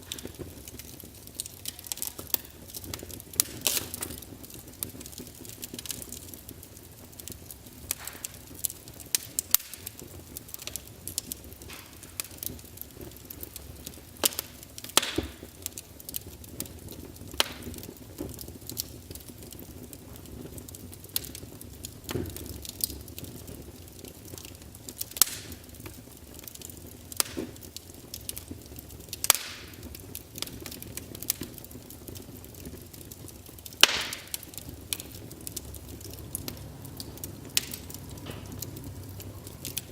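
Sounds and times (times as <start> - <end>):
fire hissing: 0.0 - 39.9
wood fire crackling: 0.0 - 39.9.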